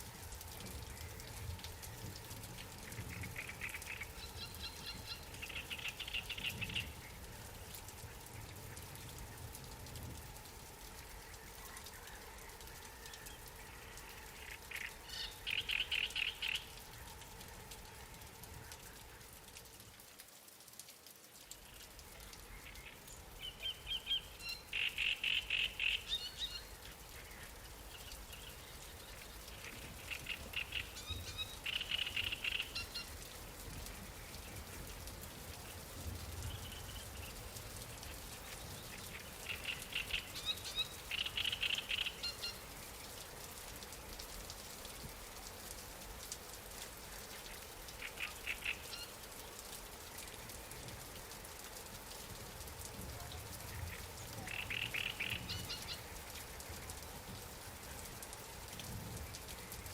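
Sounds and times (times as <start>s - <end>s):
light rain on water: 0.0s - 59.9s
songbird trilling: 54.5s - 56.0s.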